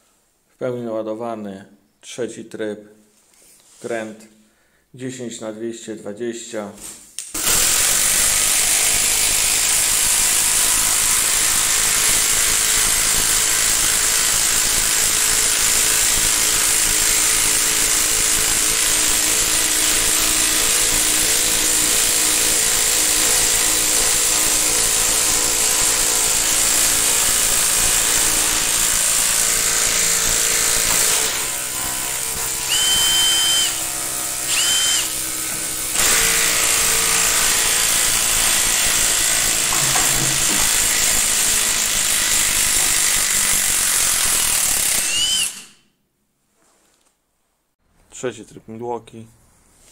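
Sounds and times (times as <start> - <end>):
impact tools hammering screws: 11.6 - 45.7.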